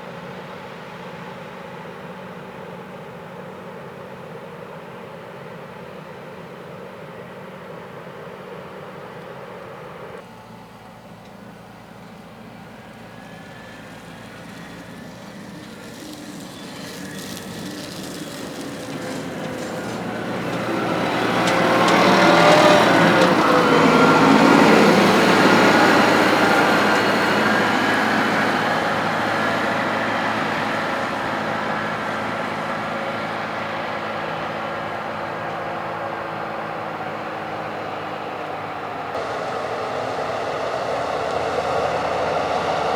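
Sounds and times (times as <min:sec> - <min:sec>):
heavy vehicle engine passing by: 0:08.8 - 0:42.9.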